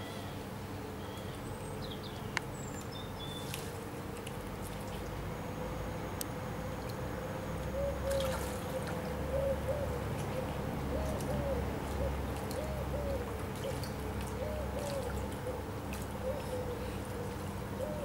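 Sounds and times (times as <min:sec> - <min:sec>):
steady hum: 0:00.0 - 0:18.0
bird cooing: 0:07.7 - 0:18.0.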